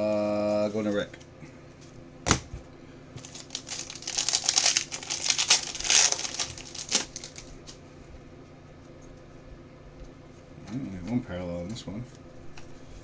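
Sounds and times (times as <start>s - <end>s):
trading cards clicking and rustling: 3.2s - 7.8s.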